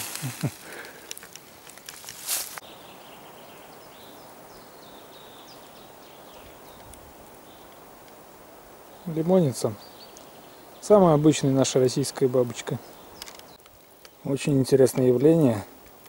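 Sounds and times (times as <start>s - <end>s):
rustling and brushing: 0.0s - 2.7s
forest background: 0.0s - 16.0s
faint bird chirps: 2.6s - 7.8s, 8.8s - 14.4s.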